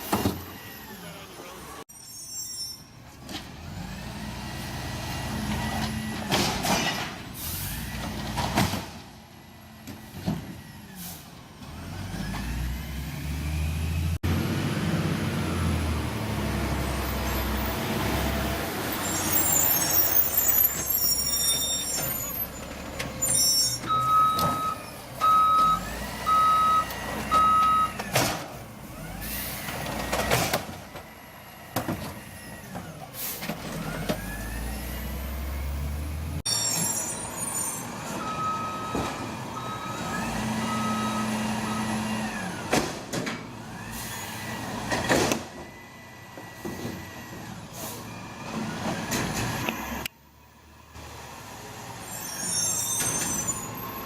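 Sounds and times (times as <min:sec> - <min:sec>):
garbage truck diesel engine: 0:00.0 - 0:54.0
high squealing: 0:01.9 - 0:03.0, 0:18.9 - 0:24.1, 0:52.0 - 0:54.0
air brakes hissing: 0:07.3 - 0:07.9, 0:10.9 - 0:11.4, 0:33.2 - 0:33.6, 0:47.7 - 0:48.2
reverse alarm beeps: 0:23.9 - 0:28.0, 0:38.2 - 0:40.1.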